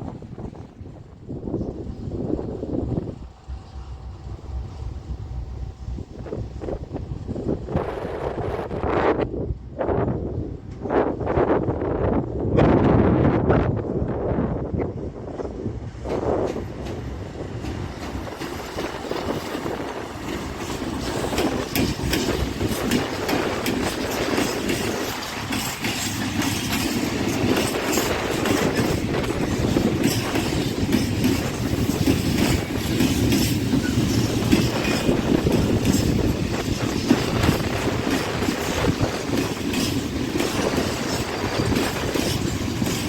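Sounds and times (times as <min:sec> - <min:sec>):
freight train wheels clattering: 0:15.7 - 0:43.0.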